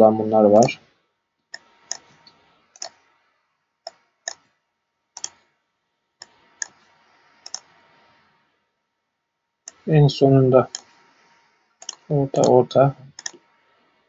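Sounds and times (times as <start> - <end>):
computer mouse clicks: 1.5 - 3.1, 3.9 - 4.5, 5.2 - 5.4, 6.2 - 6.8, 7.4 - 7.7, 10.7 - 11.0, 11.8 - 13.4.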